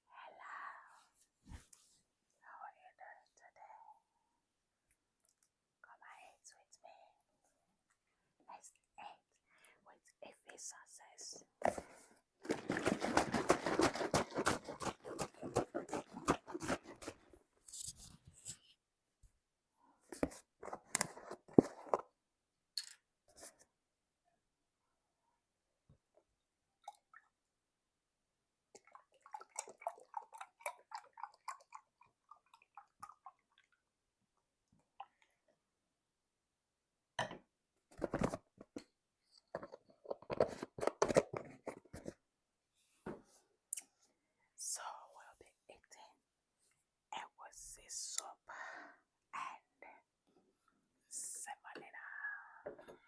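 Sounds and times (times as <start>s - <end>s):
crinkling and rustling handling: 20.1s - 22.1s, 37.9s - 42.2s.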